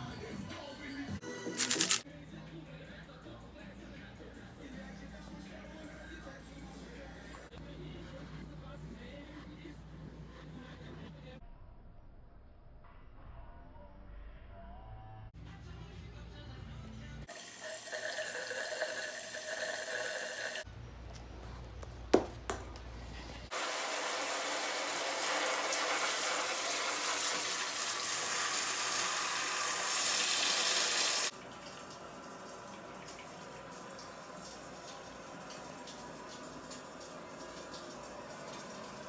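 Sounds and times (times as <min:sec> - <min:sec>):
water running: 0:01.5 - 0:02.0, 0:17.3 - 0:39.0.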